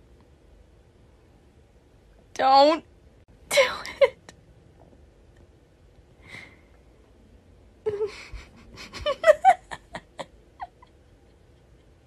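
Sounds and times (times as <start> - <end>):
woman laughing with squeals: 7.9 - 11.2.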